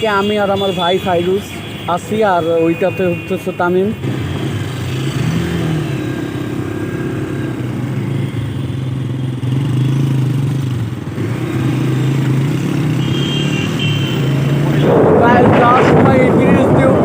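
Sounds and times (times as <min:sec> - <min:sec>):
wind noise on microphone: 0:14.5 - 0:17.0.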